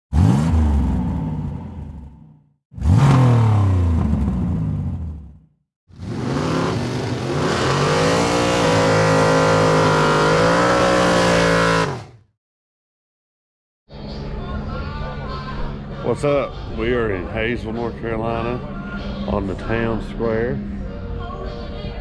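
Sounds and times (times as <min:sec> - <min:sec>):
engine revving: 0:00.1 - 0:12.3.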